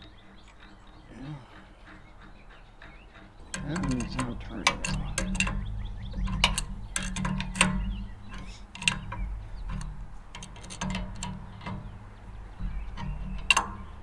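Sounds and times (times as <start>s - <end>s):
ratchet wrench clicking: 3.4s - 14.0s.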